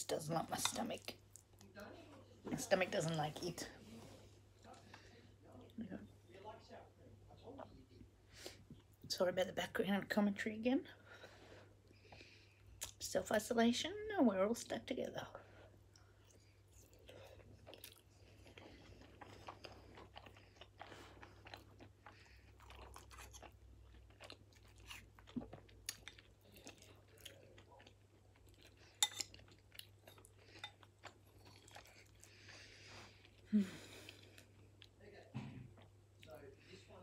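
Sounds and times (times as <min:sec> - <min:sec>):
chewing with mouth clicks: 0:15.9 - 0:35.0.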